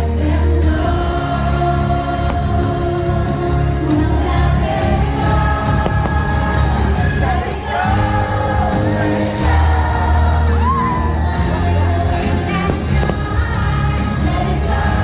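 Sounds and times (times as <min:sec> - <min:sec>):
song over outdoor speakers: 0:00.0 - 0:15.0
firework bursts: 0:04.2 - 0:14.5
crowd whooping: 0:04.2 - 0:15.0.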